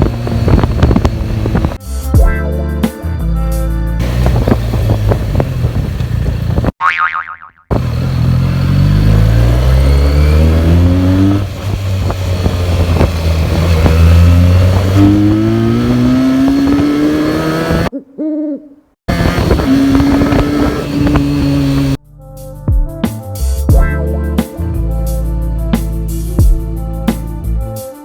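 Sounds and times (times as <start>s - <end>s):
motorcycle engine accelerating: 0.0s - 1.8s, 4.0s - 6.8s, 7.7s - 17.9s, 19.1s - 22.0s.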